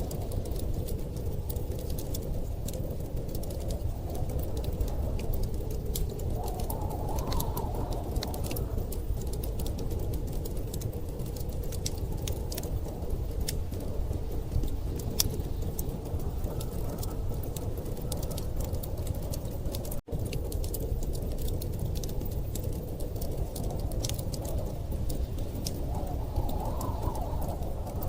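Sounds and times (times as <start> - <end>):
low rumble of storm wind: 0.0 - 28.0
wood fire crackling: 0.0 - 28.0.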